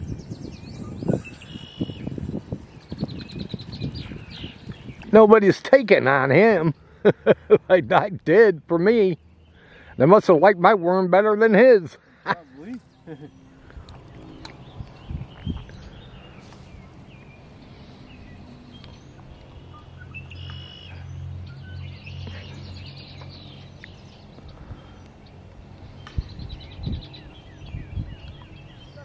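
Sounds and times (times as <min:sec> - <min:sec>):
songbirds chirping and singing: 0:00.0 - 0:29.0
low engine-like drone: 0:12.0 - 0:29.0.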